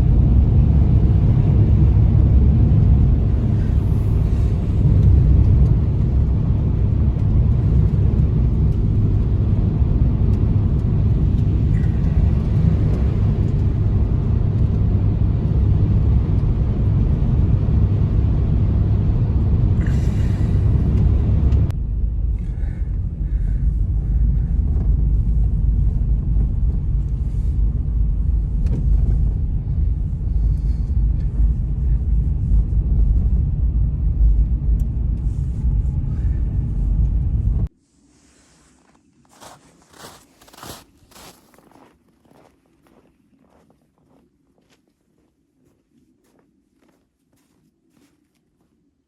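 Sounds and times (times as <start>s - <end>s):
blizzard wind blowing: 0.0s - 48.8s.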